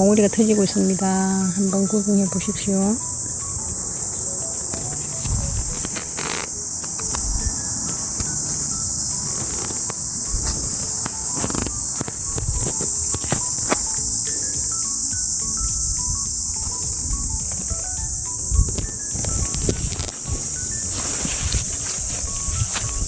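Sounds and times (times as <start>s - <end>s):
insect chorus: 0.0s - 23.0s
quiet stepping-note tune: 0.0s - 23.0s
soft bumps: 4.6s - 18.0s.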